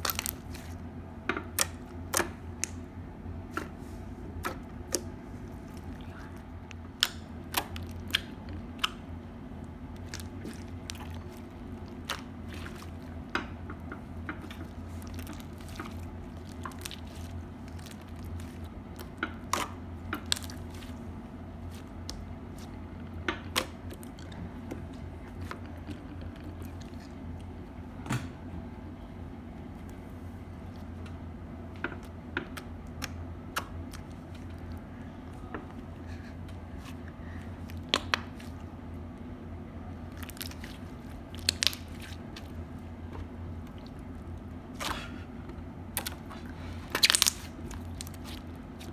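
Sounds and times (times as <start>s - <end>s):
slime crackling and popping: 0.0s - 0.7s, 4.4s - 24.3s, 40.1s - 42.6s, 46.0s - 48.9s
steady low hum: 0.0s - 48.9s.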